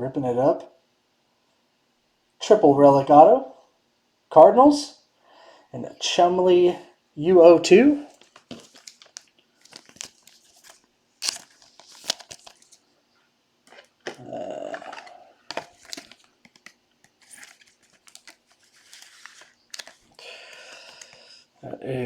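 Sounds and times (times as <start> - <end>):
rough rustle or tear: 8.0 - 12.8, 13.7 - 20.2
cards and packaging handled: 8.0 - 12.9, 13.6 - 21.2.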